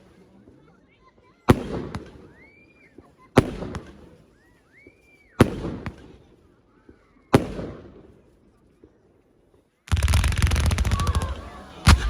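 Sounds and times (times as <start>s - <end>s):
faint firework whistle: 2.2s - 3.1s, 4.2s - 5.5s, 10.1s - 12.0s
firework shells bursting: 9.9s - 12.0s.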